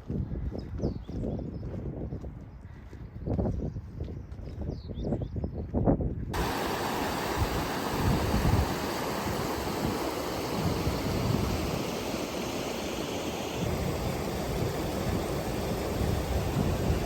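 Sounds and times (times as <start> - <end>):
wind buffeting microphone: 0.0 - 17.0
flowing water: 6.4 - 17.0.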